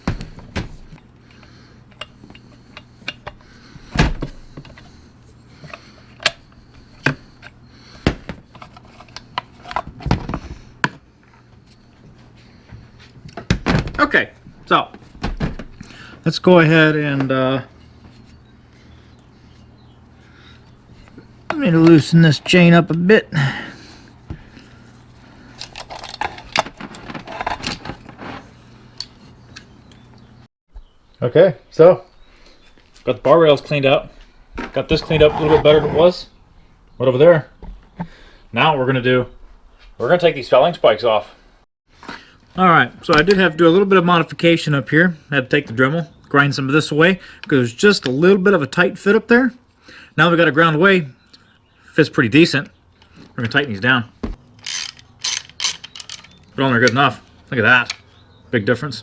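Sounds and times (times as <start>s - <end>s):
metallic clicks of wrench: 54.6s - 56.4s.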